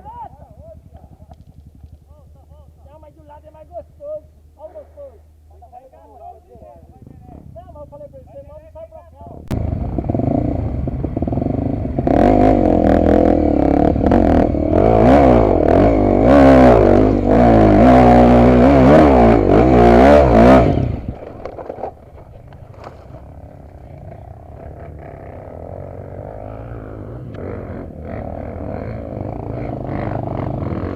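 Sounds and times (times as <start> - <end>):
dirt bike engine revving: 0.0 - 4.6, 9.4 - 30.9.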